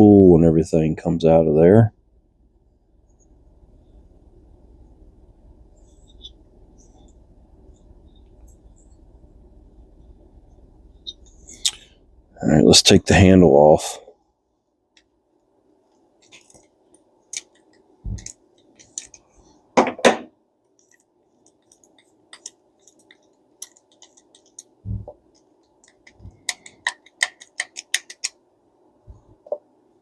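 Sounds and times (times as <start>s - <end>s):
small metal parts clicking: 20.8s - 24.7s.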